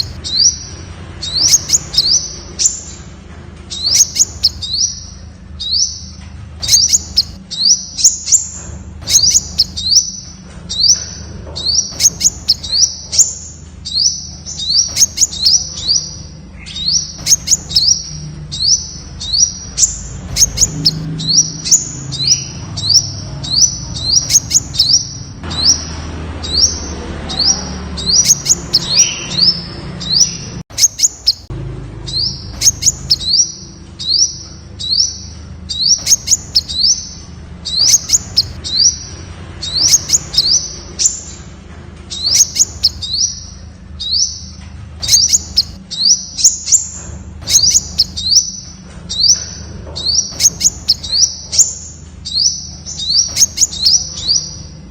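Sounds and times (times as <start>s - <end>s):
sharp ticking clicks: 3.6s - 8.4s, 11.7s - 29.4s, 30.0s - 31.5s, 32.1s - 41.3s, 42.0s - 46.8s.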